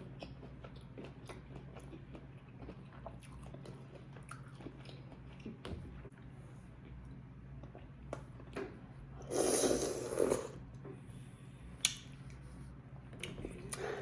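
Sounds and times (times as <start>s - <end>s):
person chewing food: 0.0s - 6.1s
steady low hum: 0.0s - 14.0s.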